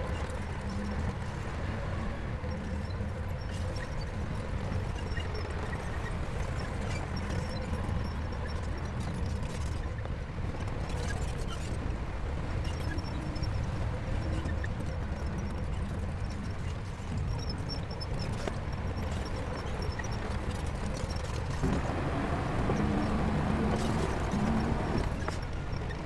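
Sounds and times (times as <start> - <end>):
diesel machinery engine rumble: 18.6 - 26.0.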